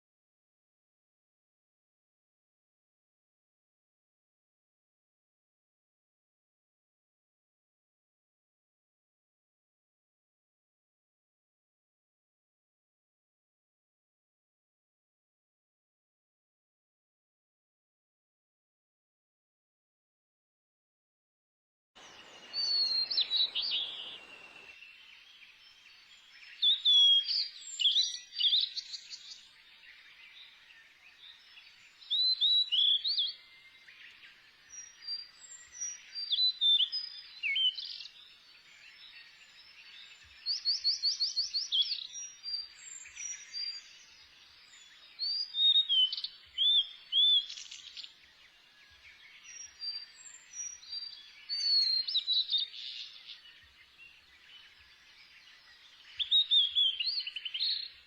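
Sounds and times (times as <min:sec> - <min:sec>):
faint steady hiss: 0:22.0 - 0:24.7
birds chirping and trilling: 0:22.0 - 0:58.0.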